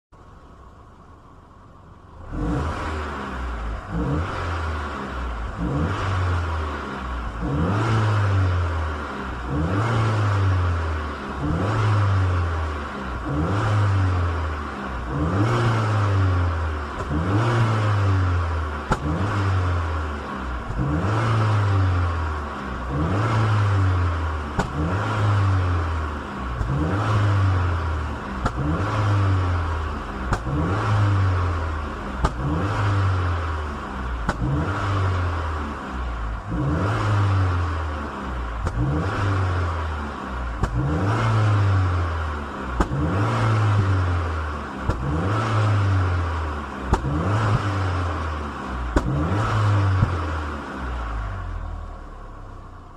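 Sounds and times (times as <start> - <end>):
car engine revving: 0.2 - 52.9.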